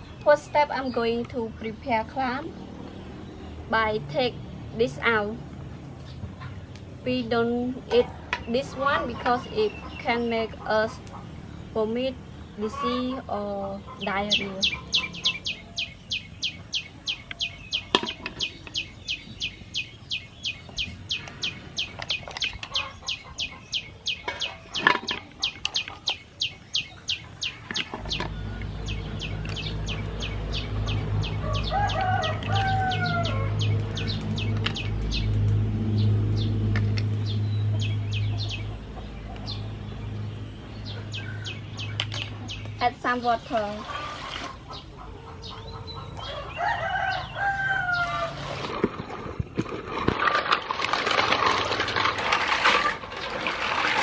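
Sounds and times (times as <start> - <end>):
bird chirping rapidly: 11.6 - 48.4
rising and falling bird call: 14.3 - 39.7, 43.7 - 49.2.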